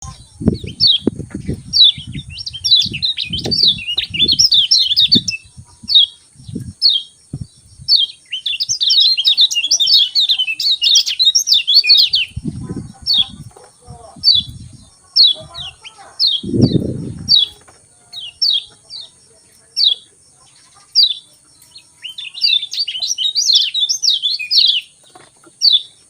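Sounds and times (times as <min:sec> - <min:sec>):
songbird chirping: 0:00.0 - 0:26.0
low dull thumps: 0:00.3 - 0:04.4, 0:05.1 - 0:08.0, 0:16.4 - 0:17.6.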